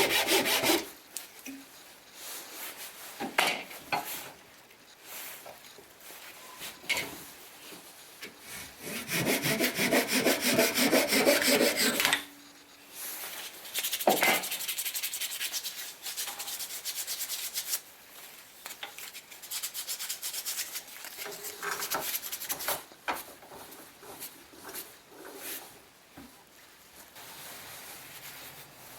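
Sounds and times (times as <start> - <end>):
sandpaper rubbing on wood: 0.0 - 1.0, 8.8 - 12.0, 13.3 - 17.8.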